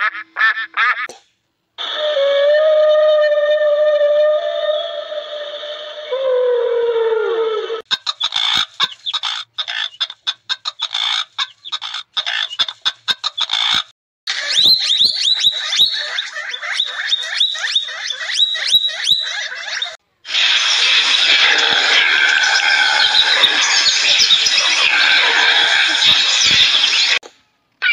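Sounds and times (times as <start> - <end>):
bird squawks: 7.9 - 27.2
rapid bird chirps rising in pitch: 14.4 - 20.0.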